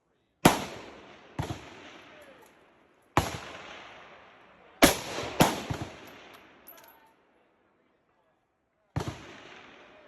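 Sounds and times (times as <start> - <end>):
rifle shots with rolling echo: 0.4 - 7.3, 8.9 - 10.0.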